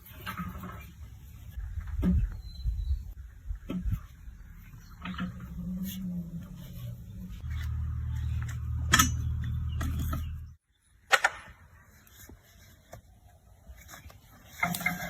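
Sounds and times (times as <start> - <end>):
metallic clanks: 7.4 - 10.6.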